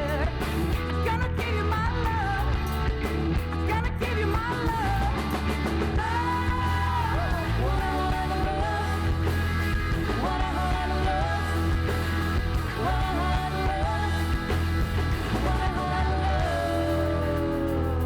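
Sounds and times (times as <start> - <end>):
live rock band playing: 0.0 - 18.0
bent lead melody line: 4.4 - 18.0.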